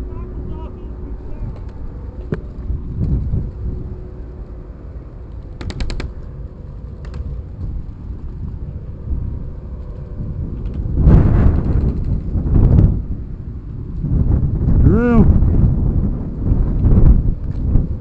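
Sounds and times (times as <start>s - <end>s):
low rush on microphone: 0.0s - 18.0s.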